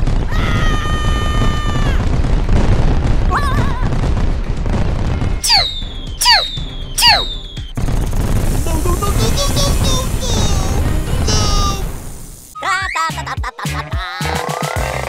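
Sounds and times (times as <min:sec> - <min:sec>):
laser gun zaps: 0:05.4 - 0:07.5
held electronic tone: 0:05.4 - 0:07.7
background music: 0:08.6 - 0:11.9, 0:12.5 - 0:15.0.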